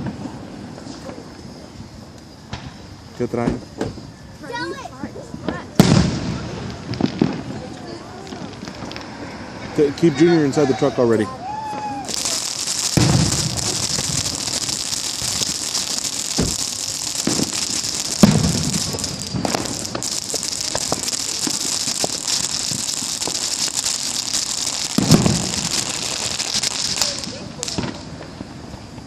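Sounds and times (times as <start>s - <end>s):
low firework booms: 0.0s - 4.1s, 5.4s - 9.8s, 12.0s - 29.0s
fireworks crackling and popping: 0.0s - 29.0s.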